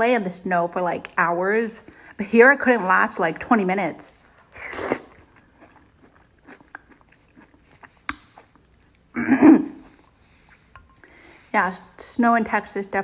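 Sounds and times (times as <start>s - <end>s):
person chewing soup: 4.2s - 11.5s
noisy breath intake: 9.9s - 11.6s.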